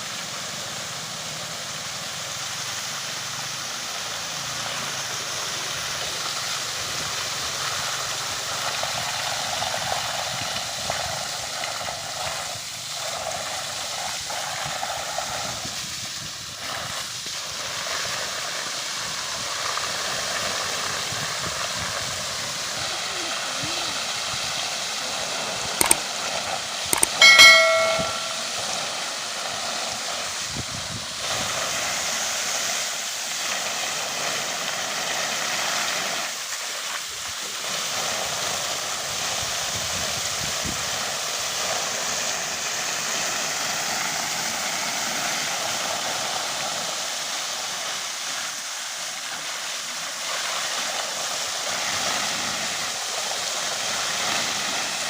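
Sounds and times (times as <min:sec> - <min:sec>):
water jet spraying hiss: 0:00.0 - 0:26.9, 0:29.8 - 0:55.0
short high-pitched tone: 0:27.0 - 0:28.7.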